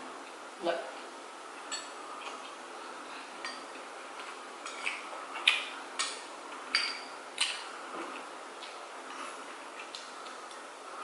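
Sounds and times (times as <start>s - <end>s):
steady background hiss: 0.0s - 11.0s
utensils clinking against dishes: 6.0s - 7.2s.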